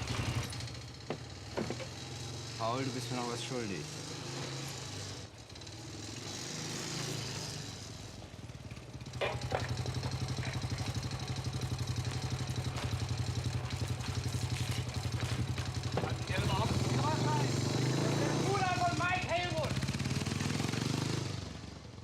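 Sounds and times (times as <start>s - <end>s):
motorcycle engine puttering: 0.0s - 22.0s.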